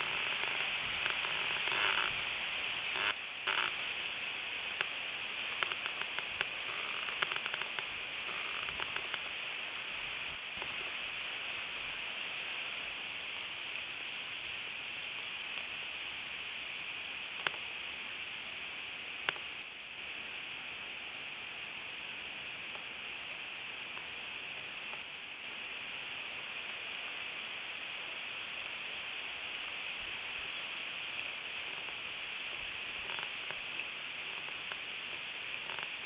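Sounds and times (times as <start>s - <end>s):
steady hiss: 0.0s - 36.0s
faint clicks: 5.6s - 9.3s, 17.4s - 17.7s, 19.2s - 20.1s, 32.6s - 36.0s.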